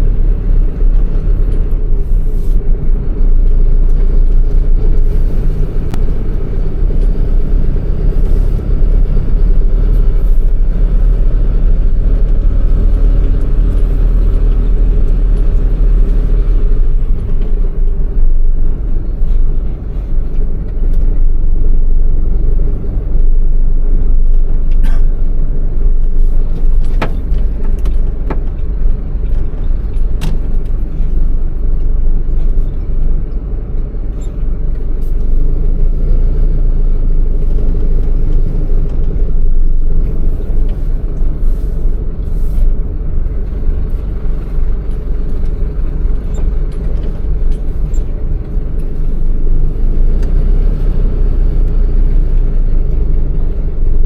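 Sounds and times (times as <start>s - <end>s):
truck diesel engine rumbling: 0.0s - 54.0s.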